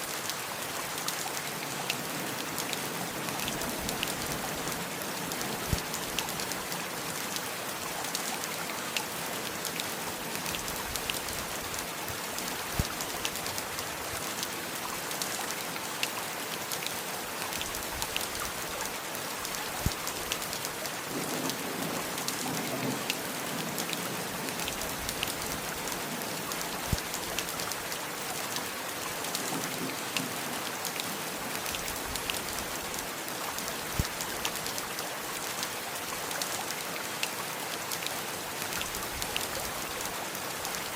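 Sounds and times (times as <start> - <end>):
heavy rain falling: 0.0 - 40.9
raindrops tapping close by: 17.5 - 33.1.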